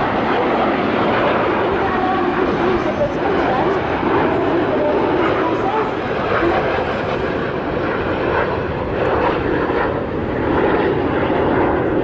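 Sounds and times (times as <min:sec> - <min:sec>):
jet engines flying: 0:00.0 - 0:12.0.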